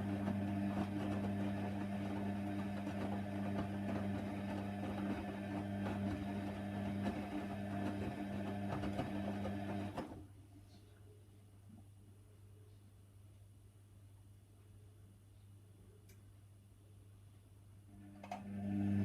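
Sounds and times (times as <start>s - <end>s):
washer dryer running: 0.0s - 10.2s, 18.0s - 19.0s
faint low hum: 10.1s - 19.0s.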